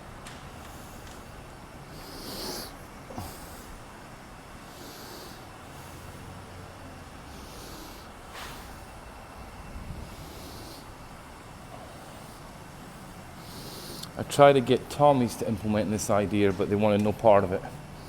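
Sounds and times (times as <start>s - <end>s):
vehicle idling: 0.0s - 18.0s
soft breathy hisses: 1.9s - 3.9s, 4.6s - 6.4s, 7.2s - 9.3s, 9.9s - 14.2s.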